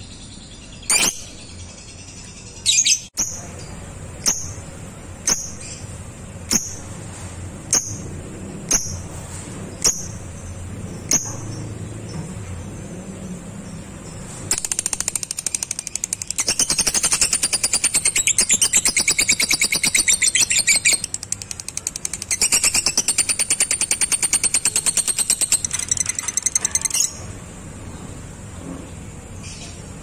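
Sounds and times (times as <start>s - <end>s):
lovebird chatter: 14.0s - 27.3s.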